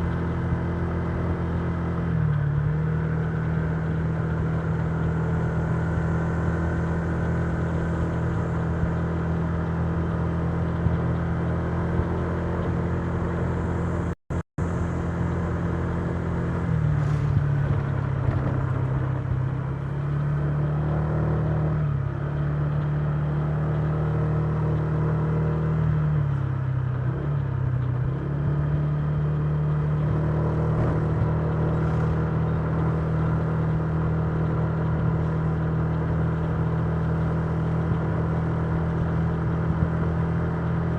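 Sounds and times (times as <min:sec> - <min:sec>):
road and wind noise: 0:00.0 - 0:40.9.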